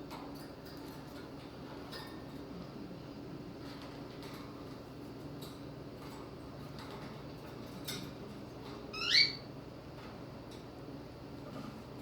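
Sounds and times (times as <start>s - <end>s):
cockatiel chirp: 9.0s - 9.4s.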